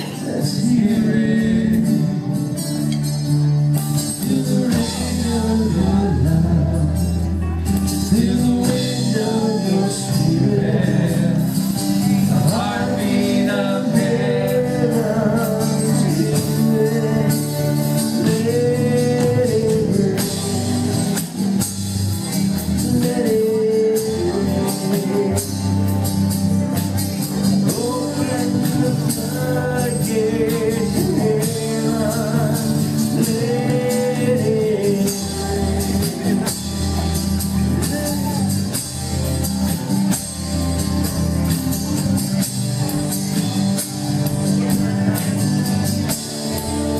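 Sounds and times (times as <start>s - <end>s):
person singing: 4.1s - 21.7s, 22.3s - 26.0s, 27.3s - 38.8s
steady percussion beat: 11.2s - 46.9s.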